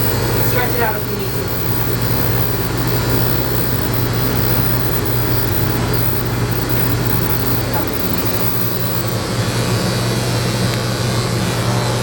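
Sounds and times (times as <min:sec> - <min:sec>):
electric clippers humming: 0:00.0 - 0:09.2.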